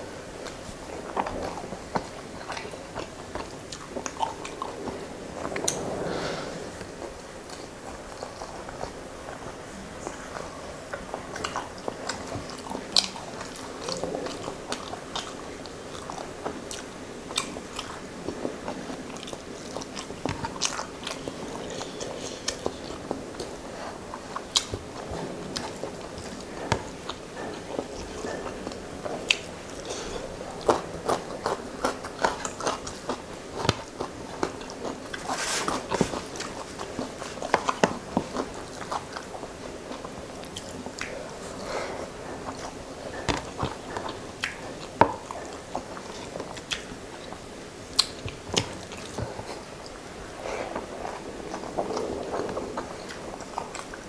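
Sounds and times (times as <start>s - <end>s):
close chewing with mouth smacks: 0.0s - 5.8s, 6.7s - 54.0s.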